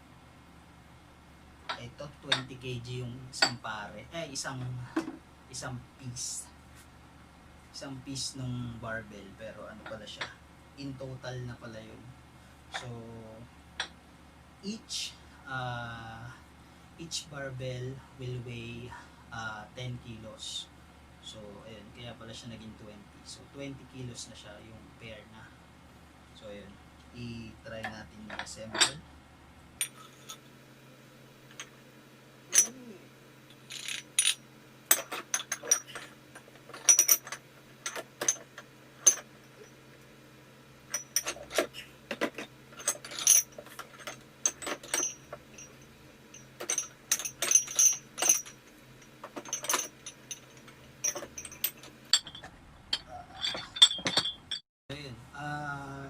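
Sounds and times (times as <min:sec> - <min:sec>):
metal dumbbell plates clinking: 0:49.4 - 0:54.6.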